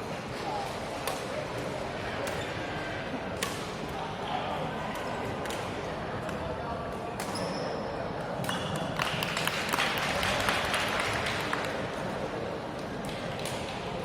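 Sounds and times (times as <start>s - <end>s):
people clapping: 8.5s - 14.0s.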